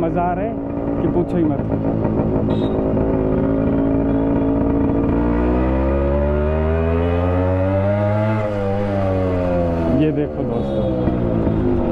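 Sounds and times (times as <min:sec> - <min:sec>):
two-stroke motorcycle engine: 0:00.0 - 0:11.9.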